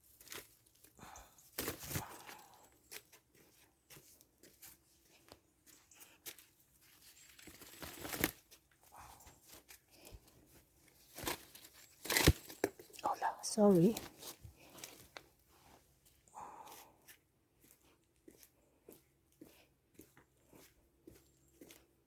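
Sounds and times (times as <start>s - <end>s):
leaves and stems rustling: 6.9s - 8.6s, 10.9s - 15.8s
stems snapping: 12.0s - 13.0s.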